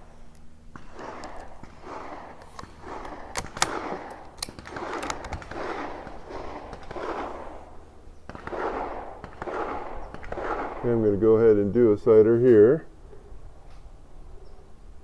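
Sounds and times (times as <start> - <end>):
steady low rumble: 0.0 - 14.1
gun clicks: 0.3 - 7.4.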